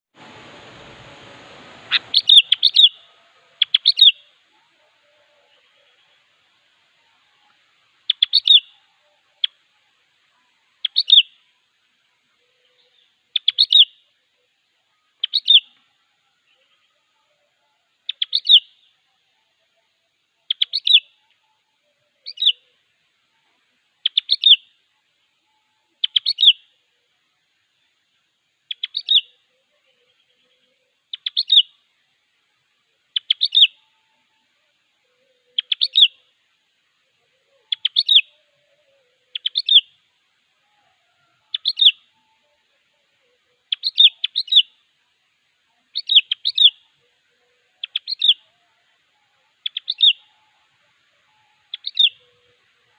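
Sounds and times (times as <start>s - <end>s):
bulbul singing: 0.2s - 6.4s, 7.1s - 9.6s, 10.5s - 11.5s, 12.6s - 14.0s, 15.0s - 15.8s, 17.9s - 18.9s, 20.4s - 21.3s, 22.2s - 22.7s, 24.0s - 24.7s, 26.0s - 26.7s, 28.7s - 29.4s, 30.0s - 31.8s, 33.1s - 34.0s, 35.5s - 36.3s, 37.3s - 40.0s, 41.5s - 42.6s, 43.6s - 44.8s, 45.9s - 47.0s, 47.7s - 52.9s.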